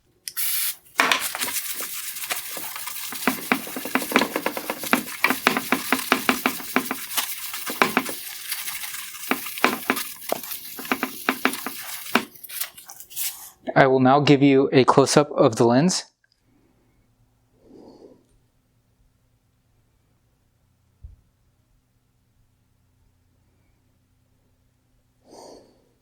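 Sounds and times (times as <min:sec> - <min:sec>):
aerosol spray hiss: 0:00.3 - 0:13.4
scratchy crackling: 0:00.7 - 0:13.4.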